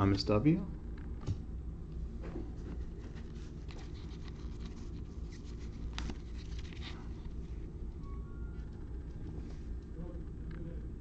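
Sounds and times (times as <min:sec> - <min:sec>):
low hum: 0:00.0 - 0:11.0
cards rustling: 0:02.7 - 0:07.6.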